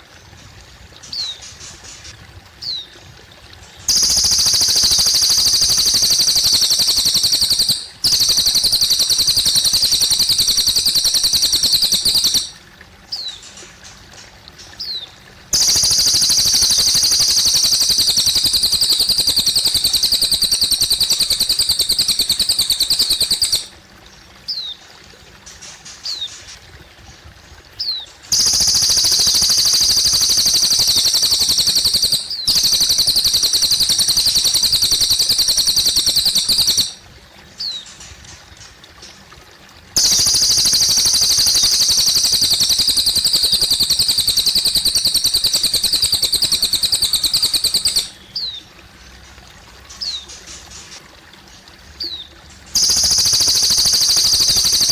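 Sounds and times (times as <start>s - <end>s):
faint trickling water: 0.0s - 54.9s
bird chirps falling: 3.9s - 12.6s, 15.6s - 23.7s, 28.3s - 37.0s, 40.0s - 48.6s, 52.8s - 54.9s
songbird trilling: 3.9s - 13.4s, 14.8s - 23.7s, 27.8s - 37.0s, 40.0s - 48.6s, 52.8s - 54.9s.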